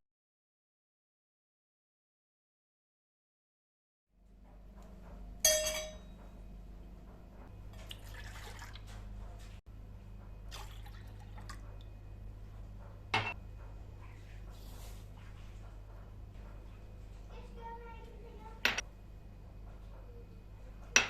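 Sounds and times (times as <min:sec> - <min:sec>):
low steady hum: 0:04.2 - 0:21.0
sharp ringing clink: 0:05.4 - 0:06.2
liquid pouring and dripping: 0:07.7 - 0:09.1, 0:10.5 - 0:11.9.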